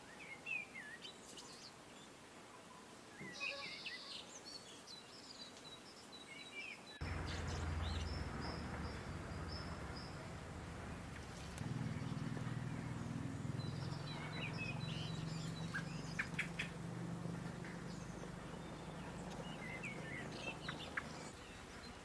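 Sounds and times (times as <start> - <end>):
birds chirping: 3.2 - 22.0
steady low hum: 7.0 - 21.4.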